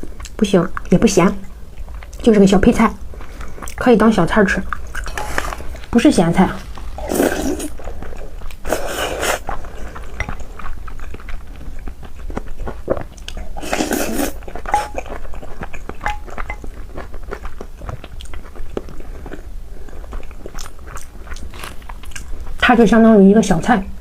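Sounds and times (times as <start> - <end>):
person chewing crunchy food: 4.6 - 22.6.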